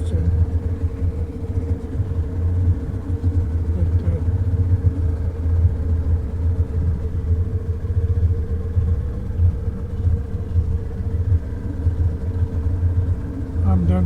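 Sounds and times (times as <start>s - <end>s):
boat engine rumbling: 0.0s - 14.0s
steady engine hum: 0.0s - 14.0s.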